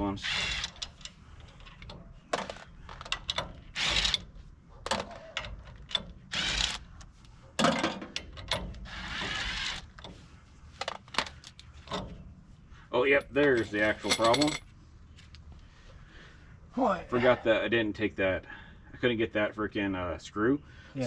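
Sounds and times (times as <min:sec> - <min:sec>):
metallic clicks and clanks: 0:00.4 - 0:06.8, 0:07.6 - 0:08.9.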